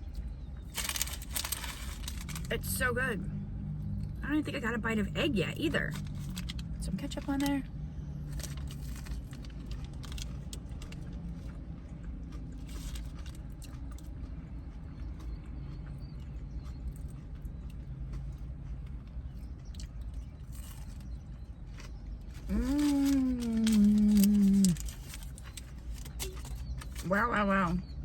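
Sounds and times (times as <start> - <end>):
steady low hum: 0.0 - 28.0
chewing with wet mouth clicks: 9.4 - 22.5
person humming mmm: 22.5 - 24.9.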